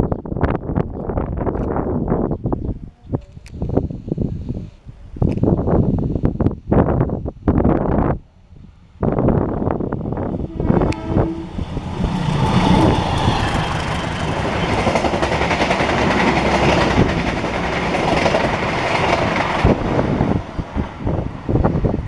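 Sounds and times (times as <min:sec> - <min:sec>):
train rushing past: 0:09.1 - 0:22.0
train horn blast: 0:10.3 - 0:13.5.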